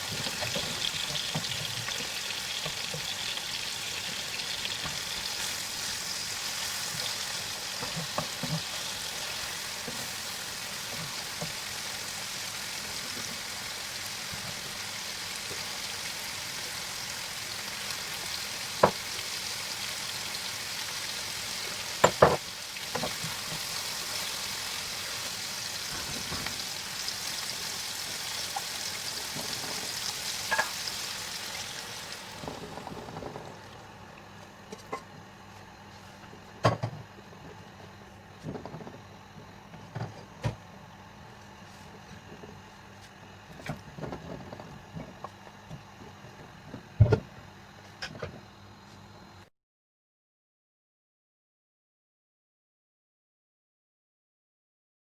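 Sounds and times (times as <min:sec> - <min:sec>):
food sizzling in a pan: 0:00.0 - 0:33.6.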